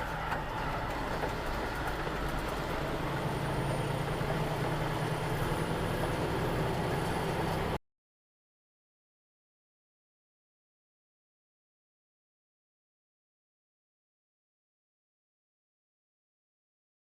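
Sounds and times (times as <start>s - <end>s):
road and wind noise: 0.0s - 7.8s
vehicle engine hum: 0.0s - 7.8s.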